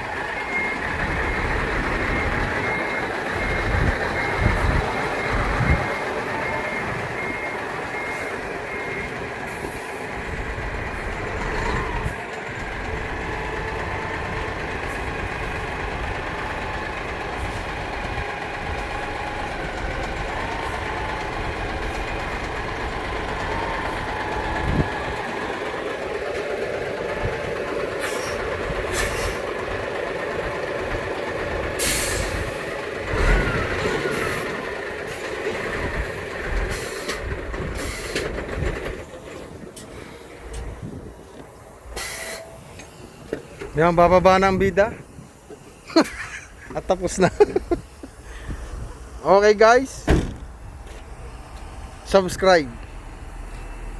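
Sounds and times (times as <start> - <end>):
heavy truck engine running: 0.0 - 53.9
reversing beeper: 0.1 - 9.8, 42.0 - 45.0
short air hisses: 42.0 - 42.6.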